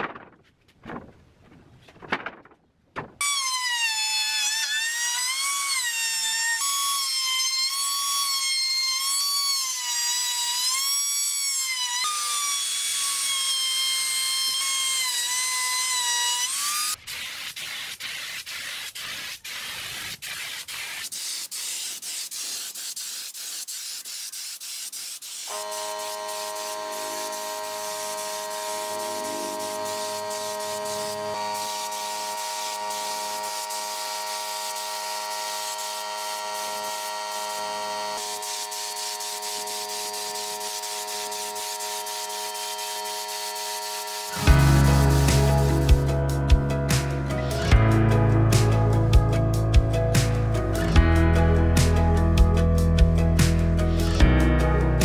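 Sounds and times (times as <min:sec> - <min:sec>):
power tool motor whine: 0:25.4 - 0:46.1.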